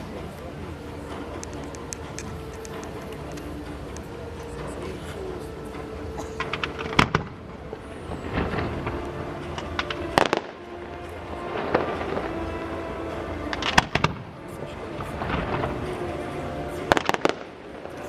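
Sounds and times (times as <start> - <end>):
music playing: 0.0 - 18.0
fireworks bangs and crackling: 6.4 - 18.0.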